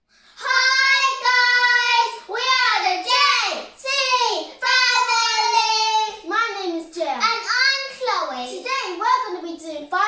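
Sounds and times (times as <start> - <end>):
child singing high notes: 0.4 - 6.3.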